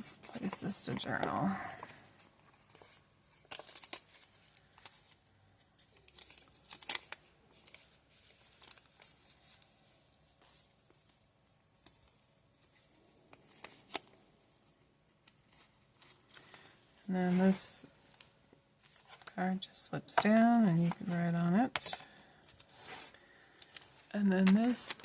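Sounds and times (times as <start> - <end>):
paper rustling: 0.0 - 14.5, 21.8 - 25.0.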